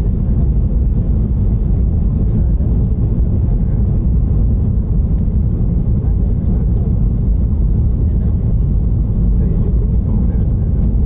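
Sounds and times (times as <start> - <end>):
airliner engines rumbling: 0.0 - 11.0.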